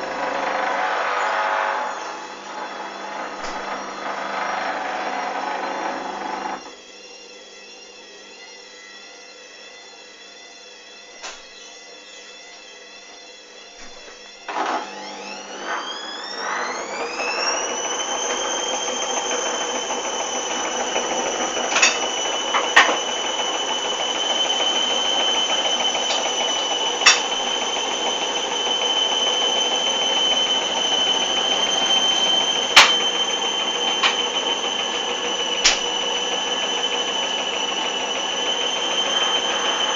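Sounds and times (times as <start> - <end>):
washing machine spinning: 0.0 - 6.8, 13.1 - 39.9.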